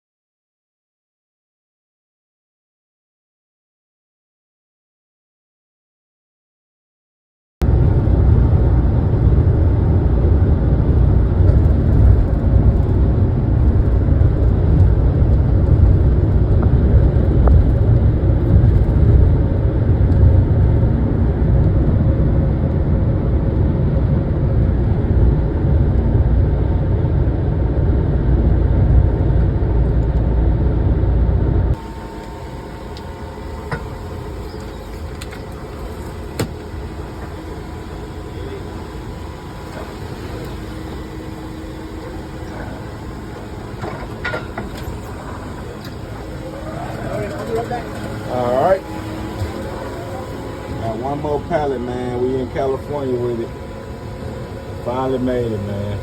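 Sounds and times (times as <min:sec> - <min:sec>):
van road and engine rumble: 0:07.6 - 0:56.0
quiet steady hum: 0:31.3 - 0:56.0.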